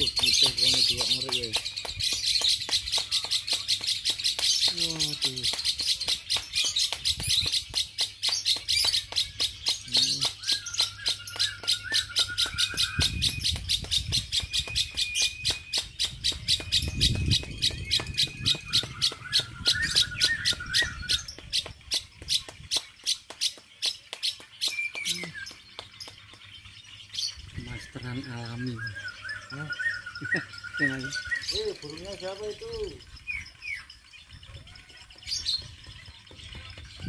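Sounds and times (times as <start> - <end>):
bird chirping: 0.0 - 37.0
bird warbling call: 8.4 - 22.1, 27.0 - 37.0.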